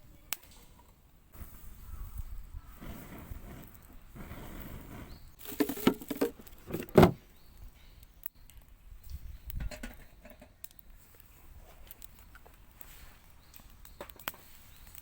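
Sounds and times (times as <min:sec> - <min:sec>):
rustling handling noise: 0:05.4 - 0:07.2.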